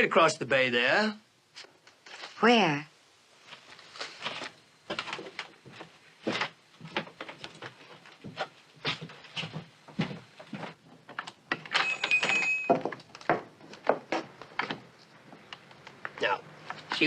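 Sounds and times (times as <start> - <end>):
footsteps on a floor: 3.5 - 10.8
high ringing tone: 11.8 - 12.8.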